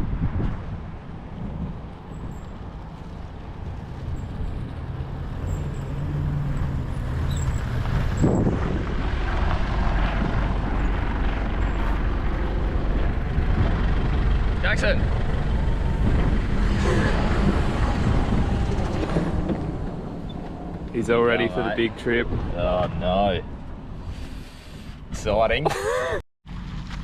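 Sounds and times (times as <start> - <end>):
wind noise: 0.0 - 25.8
low engine rumble: 1.4 - 25.5.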